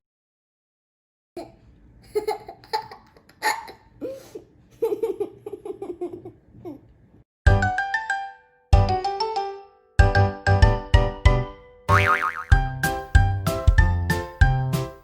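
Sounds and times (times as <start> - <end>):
young child laughing and giggling: 1.4 - 6.9.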